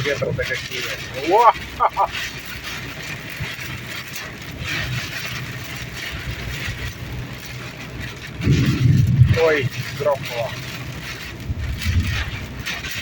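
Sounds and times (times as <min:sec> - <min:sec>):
road and engine noise in car: 0:00.0 - 0:13.0.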